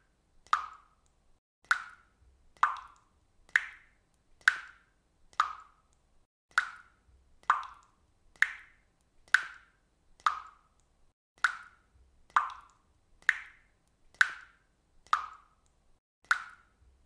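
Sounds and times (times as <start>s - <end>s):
faucet dripping: 1.6s - 9.6s, 10.2s - 14.5s.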